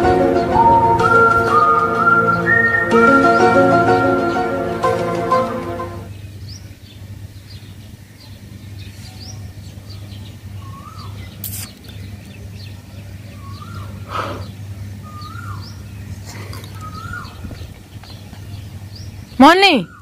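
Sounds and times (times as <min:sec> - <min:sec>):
rising and falling bird call: 0:00.2 - 0:05.8, 0:13.4 - 0:15.8, 0:16.4 - 0:18.2
small birds chirping: 0:06.1 - 0:20.0.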